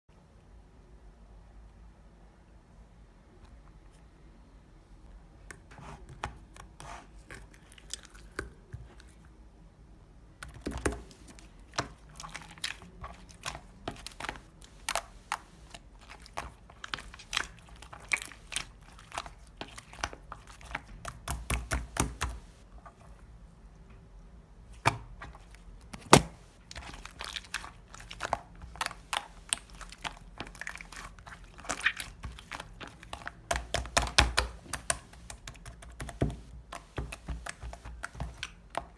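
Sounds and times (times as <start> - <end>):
small clicks taps and crinkles: 10.4 - 23.1, 24.8 - 38.9.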